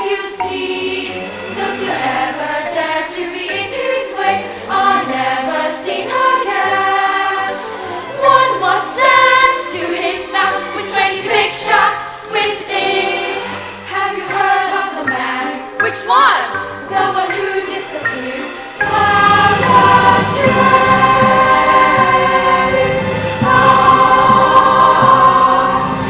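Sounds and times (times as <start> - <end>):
choir singing: 0.0 - 26.0
instrumental accompaniment: 0.0 - 26.0.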